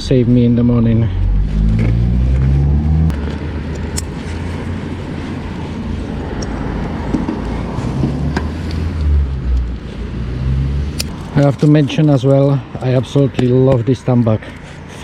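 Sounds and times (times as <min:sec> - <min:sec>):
motorcycle engine accelerating: 0:00.3 - 0:05.5.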